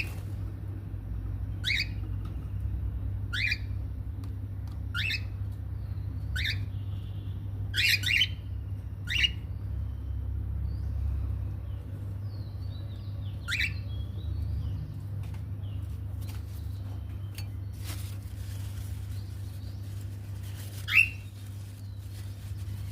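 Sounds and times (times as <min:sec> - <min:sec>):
steady low hum: 0:00.0 - 0:22.9
bird chick squawking: 0:20.8 - 0:21.4.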